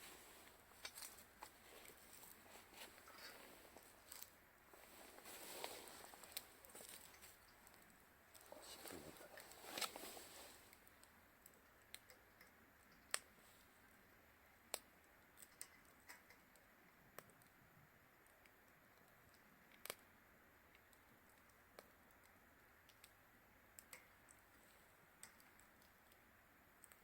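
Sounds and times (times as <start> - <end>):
faint hiss: 0.0 - 12.4
wood fire crackling: 0.0 - 27.0.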